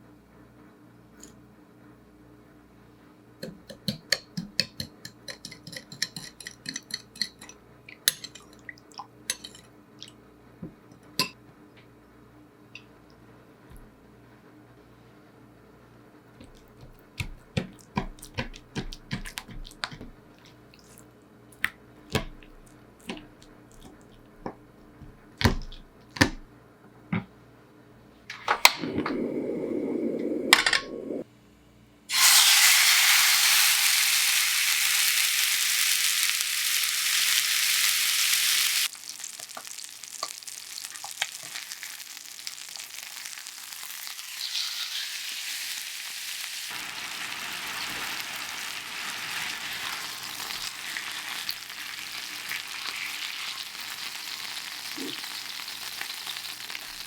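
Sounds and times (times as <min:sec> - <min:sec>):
low rushing noise: 0:28.7 - 0:31.2
chicken sizzling in a frying pan: 0:32.1 - 0:57.0.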